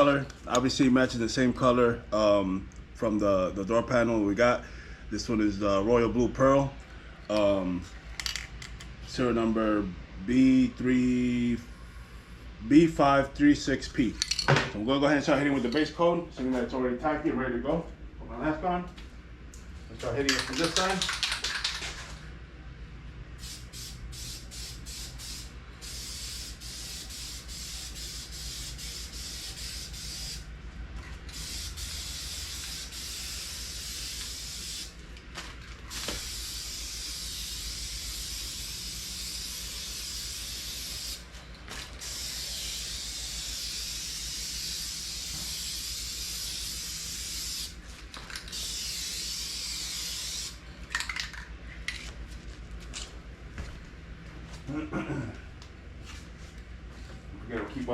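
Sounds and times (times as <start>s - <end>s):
aerosol paint spraying: 23.4s - 30.5s, 31.3s - 35.0s, 35.9s - 47.8s, 48.5s - 50.6s.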